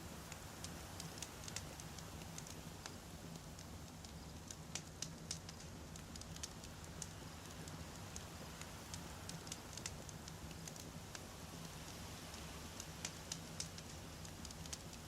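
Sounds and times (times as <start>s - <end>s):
faint low background: 0.0s - 15.0s
campfire crackling: 0.1s - 15.0s.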